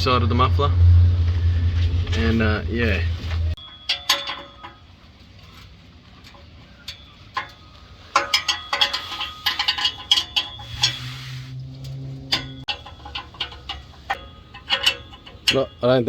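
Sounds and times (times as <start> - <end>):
low steady hum: 0.0 - 15.9
hand tools clinking on metal: 3.6 - 16.0
ratchet clicking: 7.4 - 16.0.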